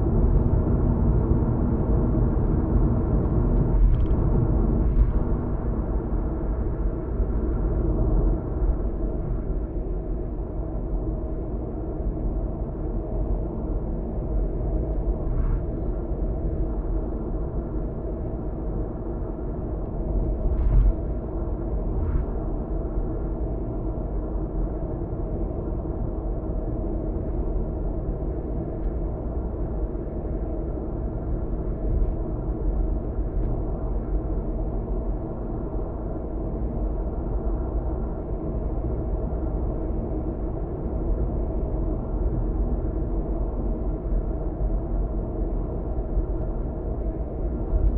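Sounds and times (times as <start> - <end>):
car cabin road and engine rumble: 0.0 - 10.3, 14.2 - 23.9.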